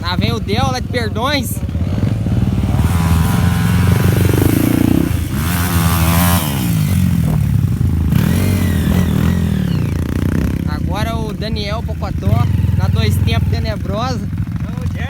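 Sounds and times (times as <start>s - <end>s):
motorcycle engine revving hard: 0.0s - 15.0s.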